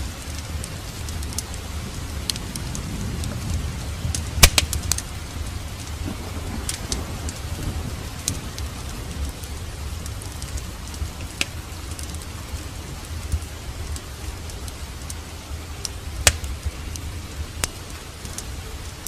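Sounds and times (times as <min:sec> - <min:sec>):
steady rain: 0:00.0 - 0:19.0
wood fire crackling and popping: 0:00.0 - 0:19.0.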